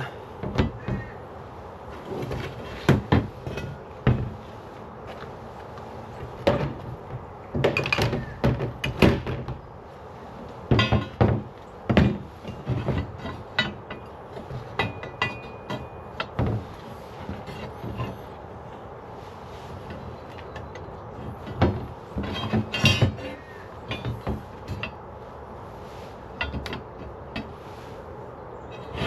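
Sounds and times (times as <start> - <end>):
steel pieces clanking: 12.1 - 16.4, 19.9 - 25.0.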